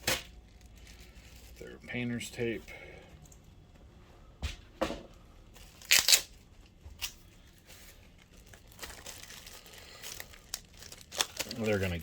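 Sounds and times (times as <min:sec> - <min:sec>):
tape tearing off roll: 0:05.8 - 0:06.3.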